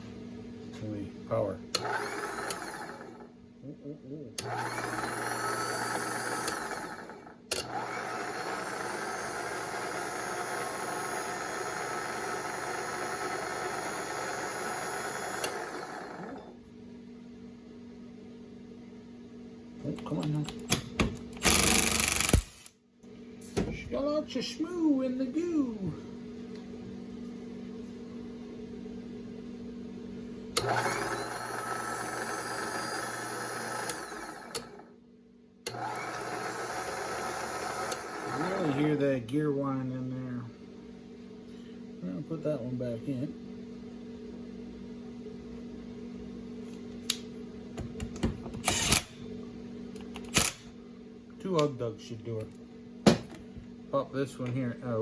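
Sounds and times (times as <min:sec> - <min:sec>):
steady low hum: 0:00.0 - 0:04.8
winch electric motor running: 0:01.7 - 0:03.3, 0:04.4 - 0:16.6, 0:21.4 - 0:22.7, 0:30.5 - 0:34.9, 0:35.7 - 0:40.1
sharp electrical click: 0:21.4 - 0:22.8.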